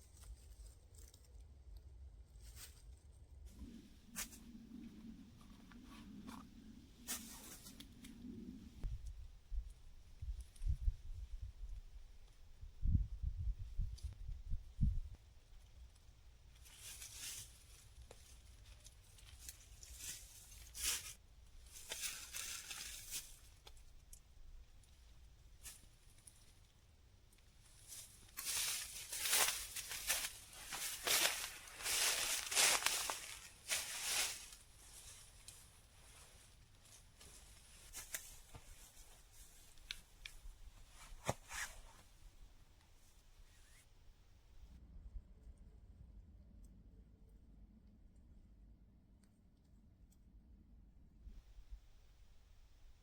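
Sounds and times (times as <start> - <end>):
rustling and crinkling: 0.0 - 9.0, 15.5 - 43.9
faint rustling: 27.6 - 44.7.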